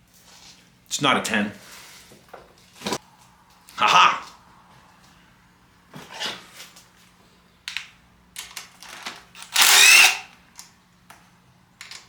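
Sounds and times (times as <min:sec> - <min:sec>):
ratchet wrench ratcheting: 0:09.4 - 0:10.3.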